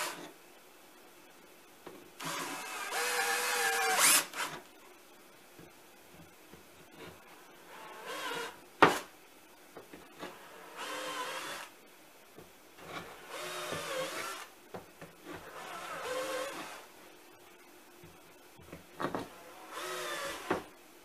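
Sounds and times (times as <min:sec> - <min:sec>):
electric drill boring into wood: 0:02.2 - 0:04.6, 0:10.6 - 0:11.7, 0:13.3 - 0:14.5, 0:15.4 - 0:16.8, 0:19.4 - 0:20.6.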